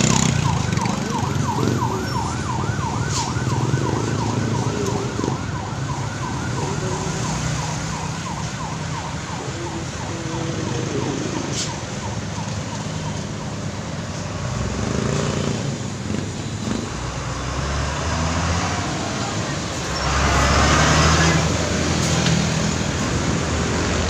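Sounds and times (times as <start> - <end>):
emergency siren yelping: 0.0 - 14.3
road traffic noise: 0.0 - 24.0.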